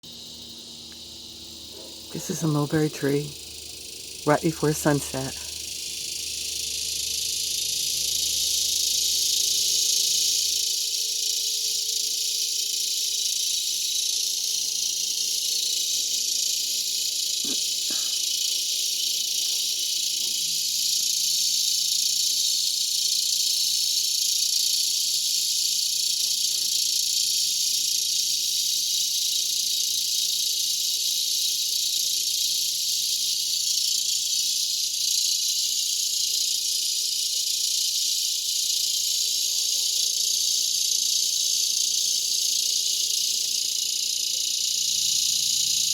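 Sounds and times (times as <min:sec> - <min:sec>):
cicadas buzzing: 0:00.0 - 0:45.9.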